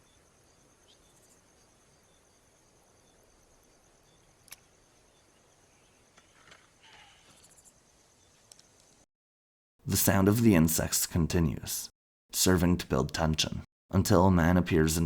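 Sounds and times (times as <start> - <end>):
field insects chirring: 0.0 - 9.1.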